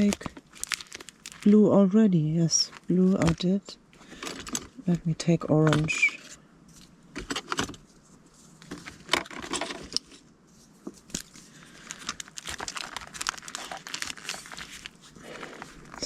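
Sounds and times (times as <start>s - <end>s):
paper rustling: 5.6s - 16.0s.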